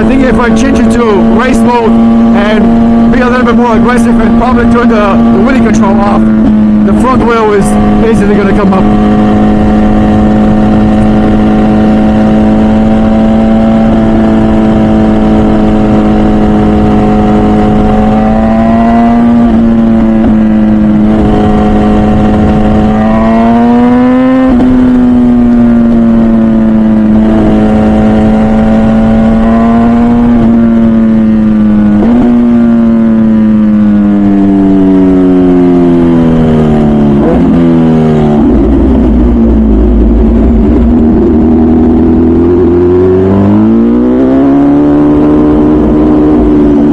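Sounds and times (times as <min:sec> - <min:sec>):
motorcycle engine revving: 0:00.0 - 0:46.9
wind rush: 0:19.4 - 0:23.8.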